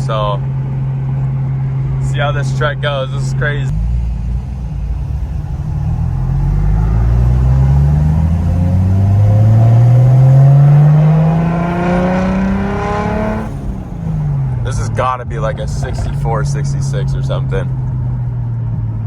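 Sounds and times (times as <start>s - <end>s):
car engine revving hard: 3.4s - 18.0s.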